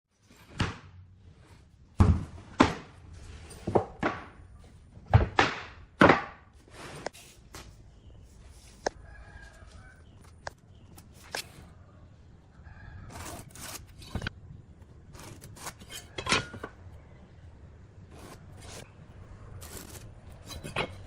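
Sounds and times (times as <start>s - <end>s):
hammer striking wood: 5.2s - 6.5s.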